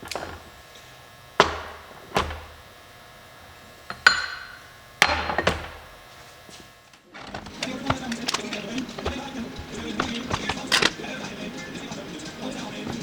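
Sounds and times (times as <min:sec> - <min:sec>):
hammer striking metal: 0:01.4 - 0:02.4.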